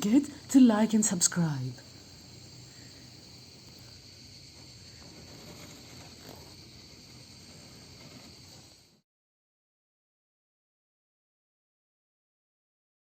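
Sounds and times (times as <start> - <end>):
faint insect chorus: 0.0 - 9.0.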